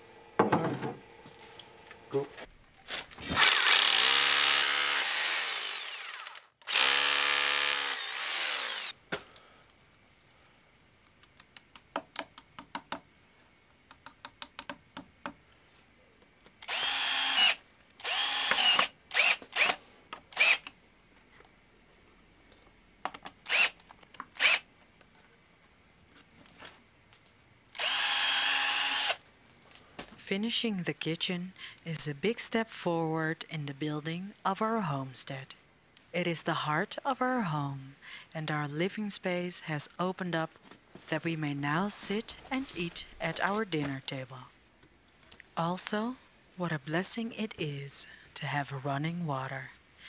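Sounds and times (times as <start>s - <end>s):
power drill running: 3.3s - 9.0s, 16.6s - 20.7s, 23.5s - 23.8s, 24.4s - 24.6s, 27.8s - 29.2s.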